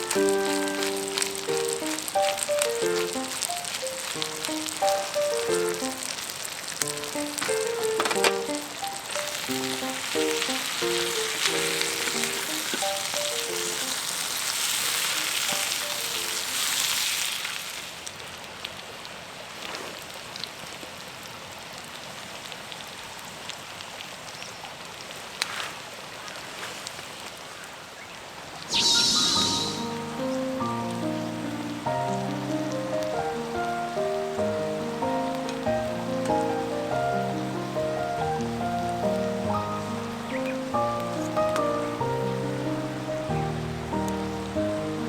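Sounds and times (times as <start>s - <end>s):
background music with plucked notes: 0.0s - 6.1s, 6.8s - 13.9s, 28.8s - 45.0s
food sizzling in a pan: 0.0s - 18.3s, 28.7s - 45.0s.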